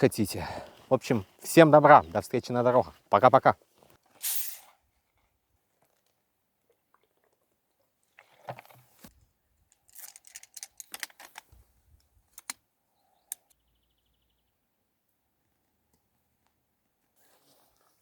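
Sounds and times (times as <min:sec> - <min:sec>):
small irregular clicks: 0:09.7 - 0:12.6, 0:13.3 - 0:13.6.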